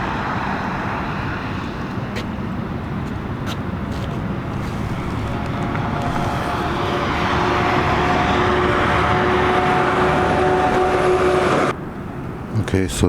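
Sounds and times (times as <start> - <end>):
motor vehicle running: 0.0 - 11.8.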